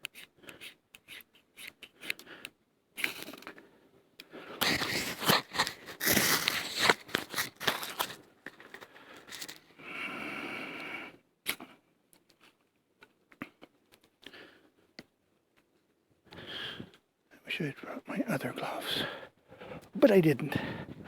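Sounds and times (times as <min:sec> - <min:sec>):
ferro rod scraped with striker: 0:00.0 - 0:02.2.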